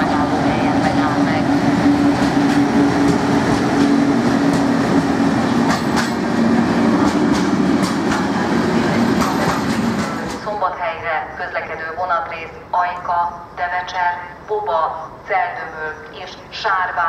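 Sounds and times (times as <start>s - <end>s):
electric locomotive hum: 0.0s - 17.0s
rumble of train wheels: 0.0s - 17.0s
wheels clicking over rail joints: 5.5s - 6.3s.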